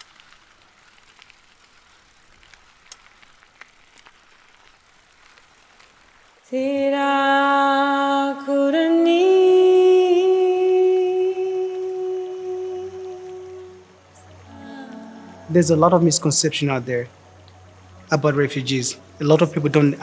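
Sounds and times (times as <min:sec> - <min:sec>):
faint crackling and clicks: 0:00.0 - 0:06.5, 0:17.1 - 0:18.1
person humming held notes: 0:06.7 - 0:13.8.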